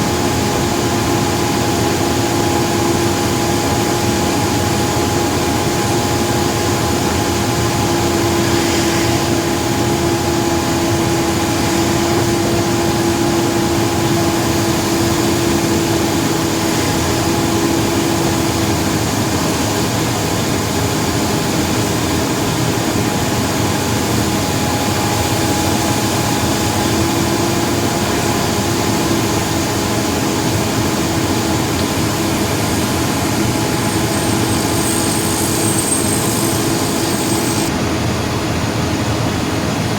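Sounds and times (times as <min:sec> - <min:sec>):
vehicle engine and road noise: 0:23.0 - 0:37.8.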